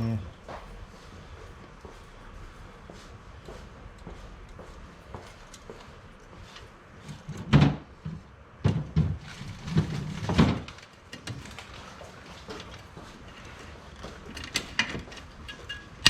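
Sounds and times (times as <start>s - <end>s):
tools clunking on metal: 7.1s - 16.0s.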